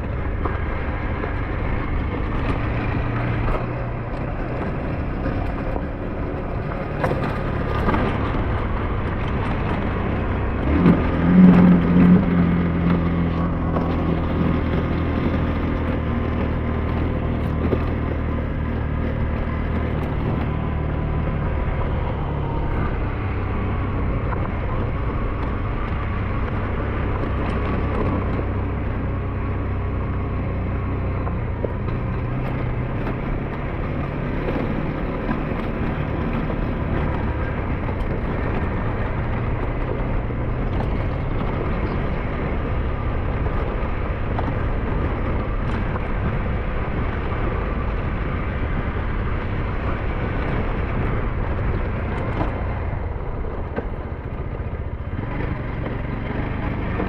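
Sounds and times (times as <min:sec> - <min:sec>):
scooter engine running: 0:00.0 - 0:57.0
wind and road noise: 0:00.0 - 0:57.0.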